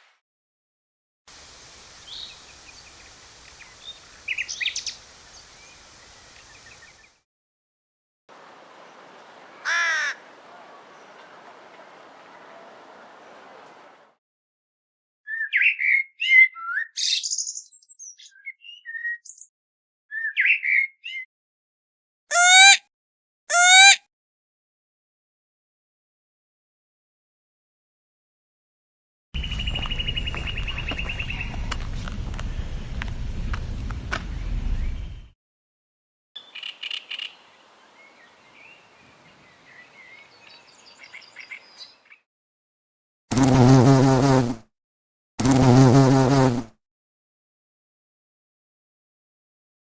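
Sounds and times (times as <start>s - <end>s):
bird chirping: 1.9s - 7.1s, 15.3s - 19.5s, 29.4s - 31.6s, 36.4s - 42.2s.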